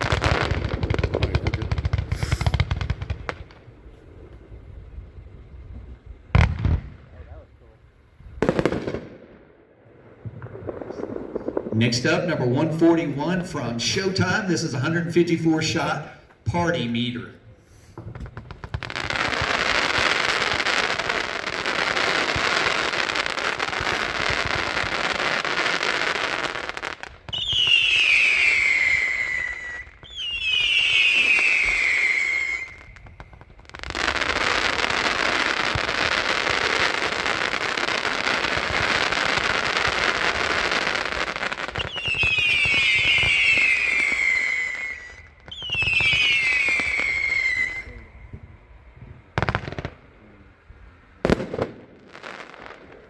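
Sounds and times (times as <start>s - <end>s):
falling firework whistles: 0.0s - 3.6s, 17.6s - 48.7s
rapid firework shots: 0.0s - 5.5s, 6.2s - 7.4s, 8.4s - 16.6s, 17.8s - 48.0s, 51.2s - 53.0s.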